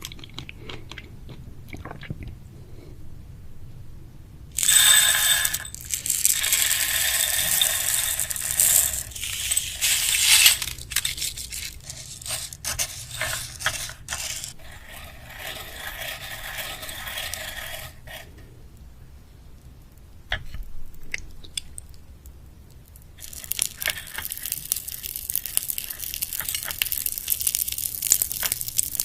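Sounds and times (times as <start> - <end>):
plastic packaging crinkling: 4.6 - 14.6, 23.2 - 29.0.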